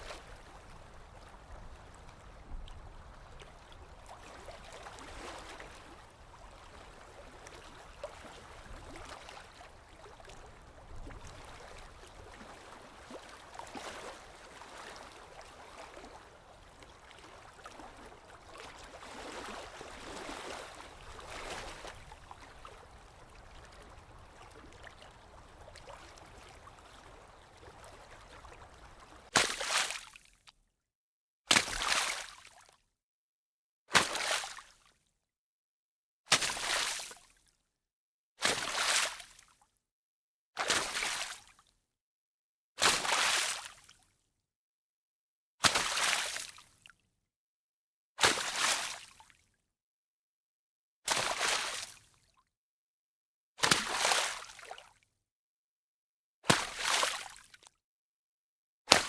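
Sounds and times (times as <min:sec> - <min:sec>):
small waves lapping ashore: 0:00.0 - 0:30.2.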